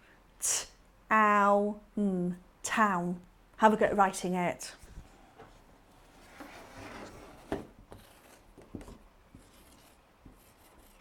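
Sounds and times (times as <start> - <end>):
pen scratching while writing: 7.0 - 11.0.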